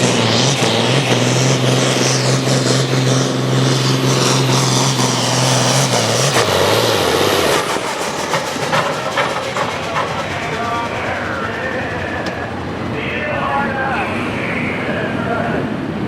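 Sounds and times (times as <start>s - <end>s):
tractor engine running hard: 0.0s - 16.0s.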